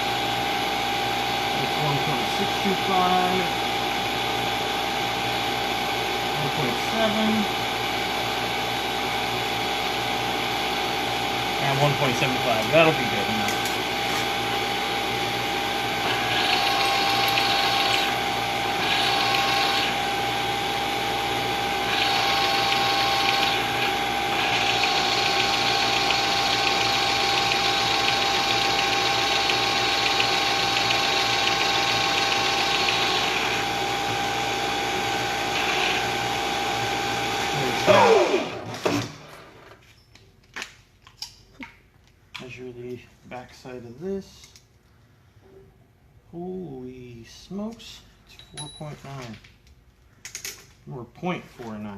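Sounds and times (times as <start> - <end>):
milling spindle whining: 11.6 - 38.7
spindle winding down: 15.6 - 39.2
tool cutting metal: 15.8 - 39.1.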